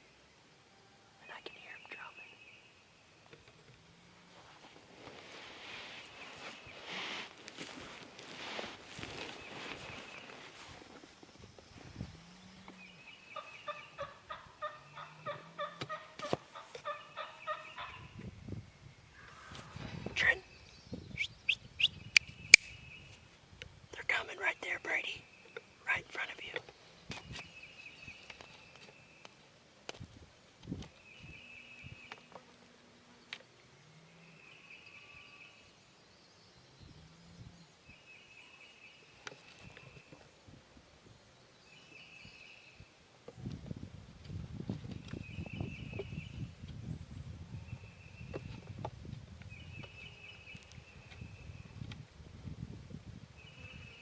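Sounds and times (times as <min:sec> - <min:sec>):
wild turkey yelps: 0:13.4 - 0:18.1
sharp click: 0:22.1 - 0:22.8.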